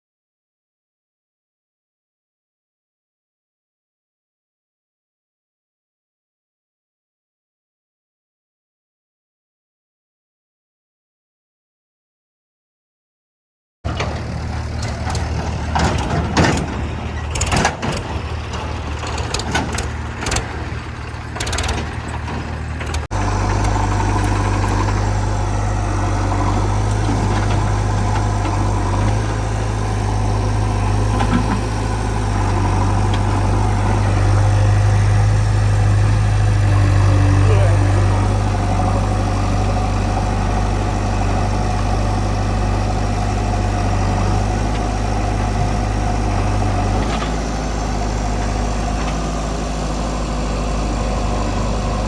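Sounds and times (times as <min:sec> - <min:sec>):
sharp knocks and clatter: 0:13.9 - 0:24.7
heavy machinery diesel engine: 0:13.9 - 0:52.0.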